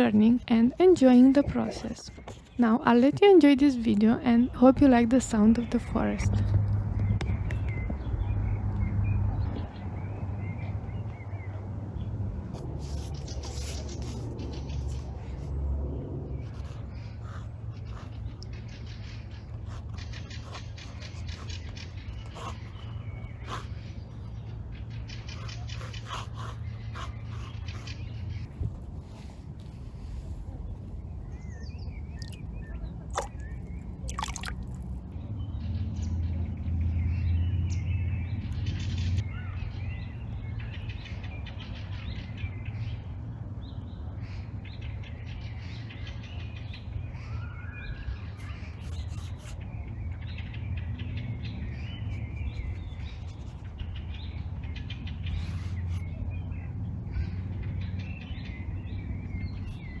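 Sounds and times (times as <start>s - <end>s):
songbirds chirping and singing: 16.3s - 60.0s.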